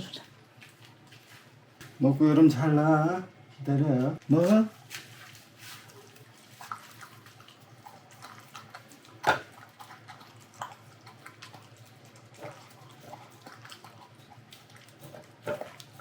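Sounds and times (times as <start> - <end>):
dog chewing and smacking: 5.1 - 16.0.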